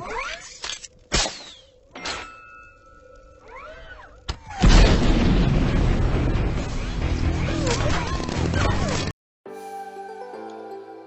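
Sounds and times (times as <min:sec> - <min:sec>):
loud rumbling boom: 0:04.6 - 0:07.3
music: 0:05.8 - 0:11.0.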